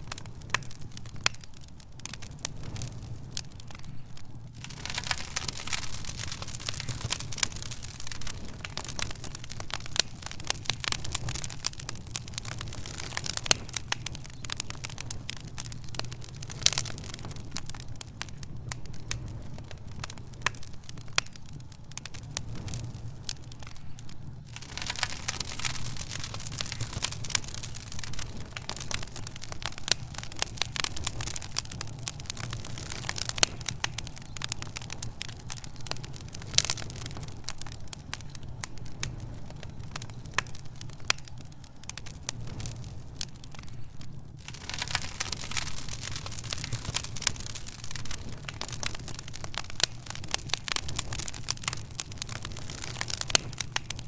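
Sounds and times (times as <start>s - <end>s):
low fire rumble and hiss: 0.0s - 54.0s
wood fire snapping and popping: 0.0s - 54.0s.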